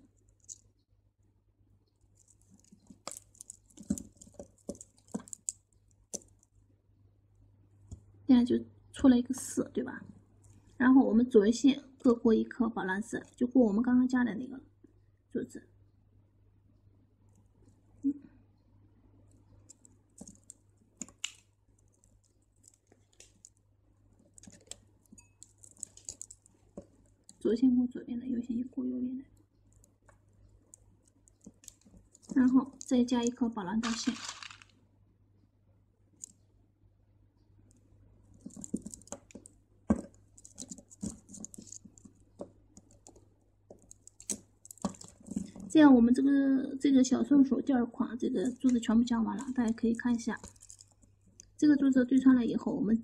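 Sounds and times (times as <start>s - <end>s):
beads clicking together: 0.2s - 0.7s, 2.1s - 6.5s, 19.4s - 23.6s, 24.2s - 27.4s, 29.7s - 34.7s, 38.4s - 45.8s, 49.4s - 51.6s.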